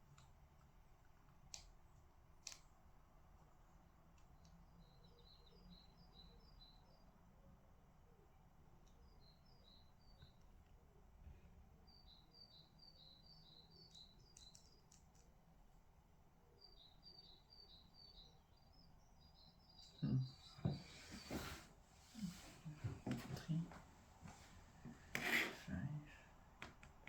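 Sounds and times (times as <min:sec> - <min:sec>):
faint bird chirping: 0:01.9 - 0:26.5
rubbing and knocking sounds: 0:20.6 - 0:23.5, 0:24.9 - 0:25.7.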